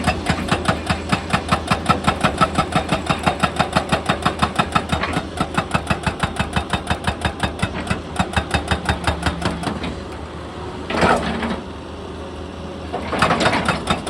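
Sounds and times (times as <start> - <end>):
diesel engine drone: 0.0 - 6.5, 7.2 - 14.0
hydraulic breaker hammering rock: 0.0 - 10.0, 13.0 - 14.0.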